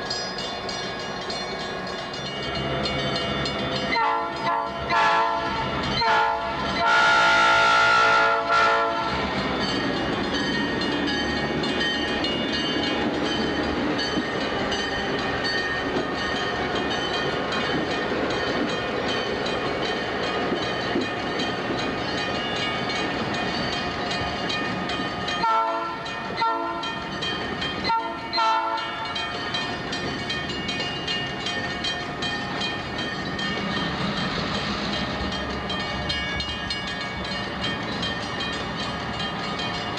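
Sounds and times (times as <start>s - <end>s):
diesel train rumbling: 0.0s - 39.9s
train air horn blasts: 4.0s - 9.2s, 25.4s - 26.9s, 27.9s - 29.0s.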